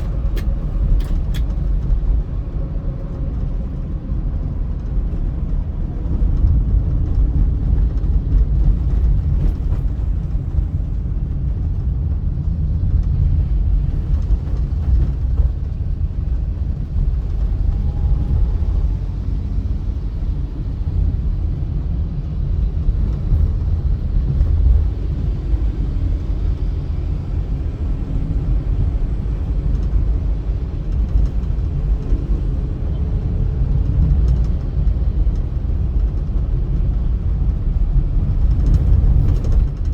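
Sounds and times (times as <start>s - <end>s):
car engine rumble: 0.0s - 39.9s.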